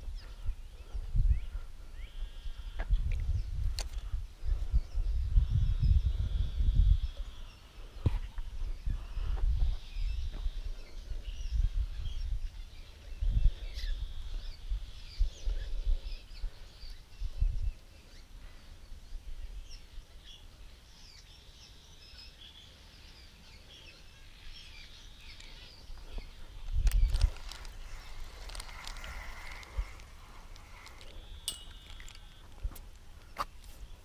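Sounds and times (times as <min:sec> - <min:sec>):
low rumble on microphone: 0:00.0 - 0:17.8
songbirds chirping: 0:00.0 - 0:34.0.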